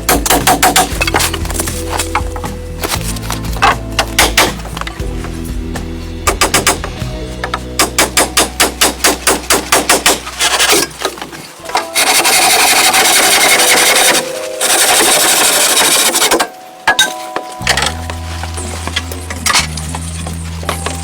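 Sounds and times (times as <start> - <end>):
rapid hammering: 0.0 - 1.6, 3.6 - 4.8, 6.2 - 11.1
harsh rasping noise: 7.8 - 16.5.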